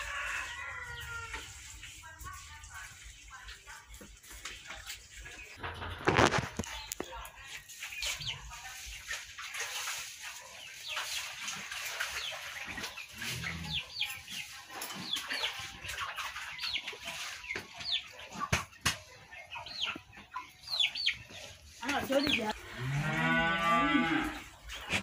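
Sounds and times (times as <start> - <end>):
birds chirping: 10.4 - 25.0.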